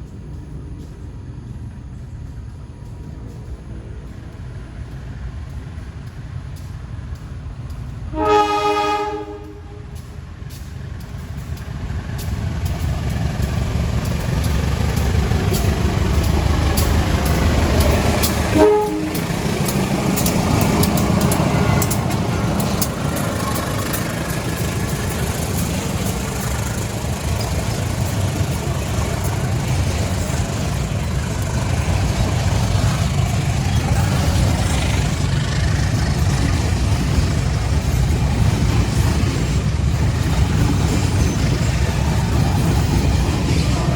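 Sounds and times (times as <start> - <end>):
locomotive engine rumble: 0.0 - 43.9
wheels clicking over rail joints: 0.0 - 43.9
locomotive horn: 8.1 - 10.0, 18.3 - 19.4.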